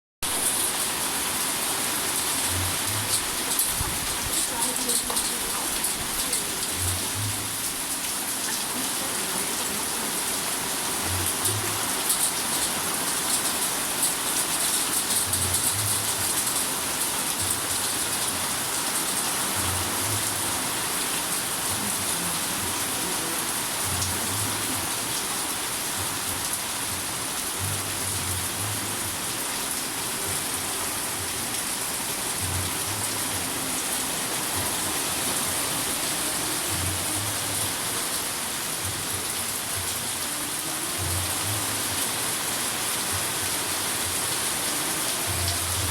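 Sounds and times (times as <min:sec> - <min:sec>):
steady rain: 0:00.2 - 0:45.9
raindrops ticking: 0:02.5 - 0:08.6.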